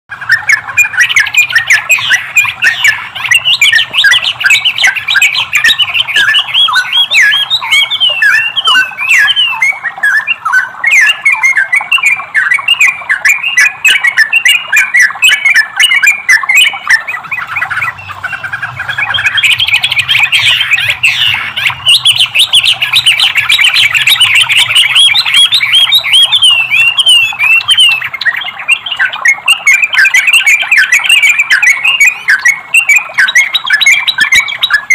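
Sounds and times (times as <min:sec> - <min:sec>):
bird chirping and chattering: 0:00.1 - 0:34.9.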